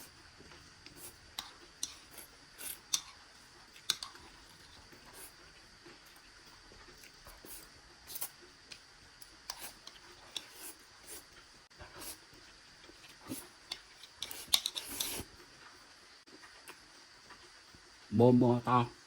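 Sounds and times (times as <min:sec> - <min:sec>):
chewing: 0:00.4 - 0:08.9.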